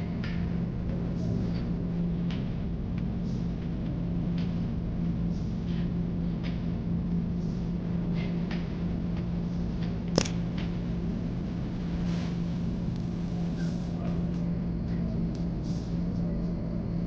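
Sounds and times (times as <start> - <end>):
airliner cabin drone: 0.0 - 17.0
sharp click: 10.1 - 10.4.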